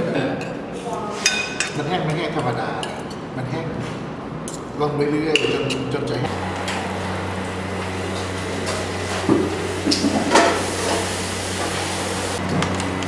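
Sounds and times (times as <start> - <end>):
low mechanical hum: 6.0 - 13.0.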